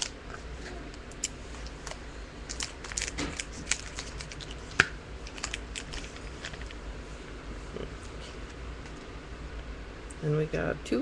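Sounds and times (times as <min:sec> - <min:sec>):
wrapper crinkling and tearing: 0:01.6 - 0:06.8.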